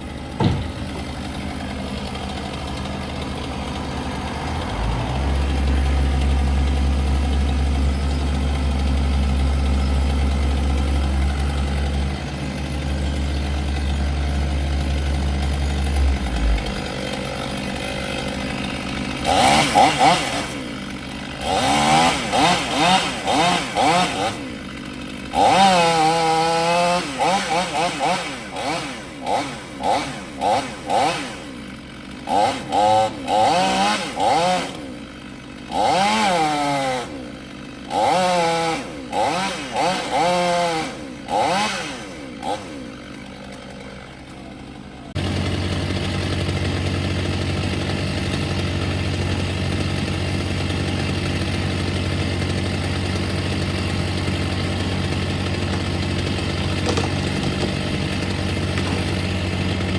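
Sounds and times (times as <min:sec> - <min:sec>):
low engine drone: 0:00.0 - 0:20.7
chainsaw revving: 0:00.0 - 0:59.9.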